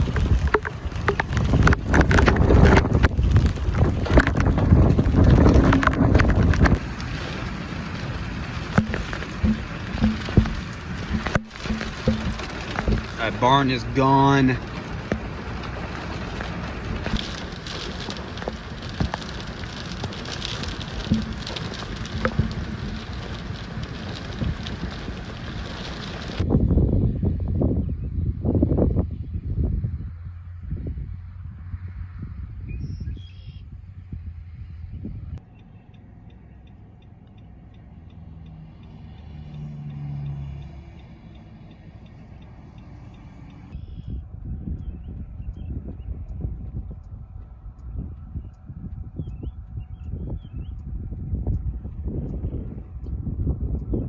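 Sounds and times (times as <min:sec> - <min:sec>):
sharp taps and knocks: 0:00.0 - 0:06.8, 0:08.8 - 0:14.1, 0:15.1 - 0:15.7, 0:17.0 - 0:23.4
heavy wind-driven rain: 0:00.0 - 0:35.4, 0:38.6 - 0:54.0
low engine rumble: 0:00.0 - 0:54.0
flasher relay ticking: 0:35.4 - 0:44.2.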